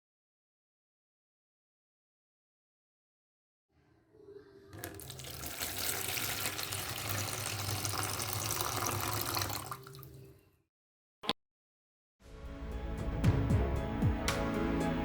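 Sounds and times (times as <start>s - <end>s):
tap water running: 4.7s - 10.3s.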